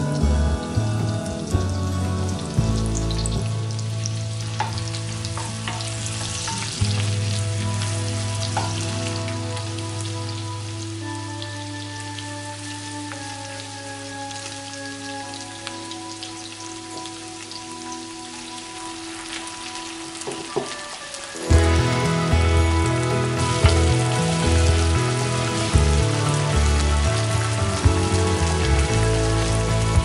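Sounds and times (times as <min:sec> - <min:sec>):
soft background music: 0:00.0 - 0:30.0
vegetables sizzling in butter: 0:00.0 - 0:30.0
wooden spatula knocking pan: 0:20.2 - 0:20.8.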